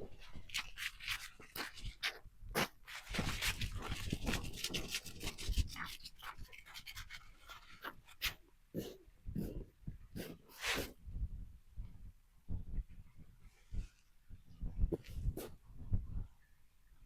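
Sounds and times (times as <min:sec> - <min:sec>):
dog sniffing and huffing: 0:07.6 - 0:11.0.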